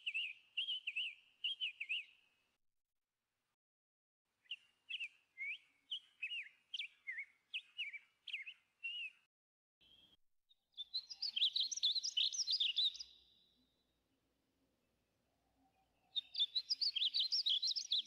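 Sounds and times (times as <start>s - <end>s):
bird twittering: 10.8s - 13.2s, 16.2s - 18.0s.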